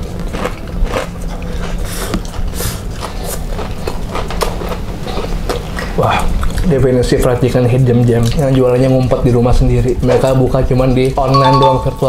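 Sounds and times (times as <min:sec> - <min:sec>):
crunchy chewing: 0:00.0 - 0:06.7
wet mouth noises: 0:00.0 - 0:06.7.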